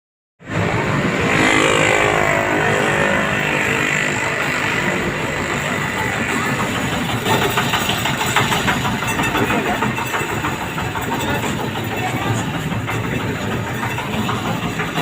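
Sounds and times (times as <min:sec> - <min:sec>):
truck engine running: 0:00.4 - 0:15.0
thin high whine: 0:00.5 - 0:07.0.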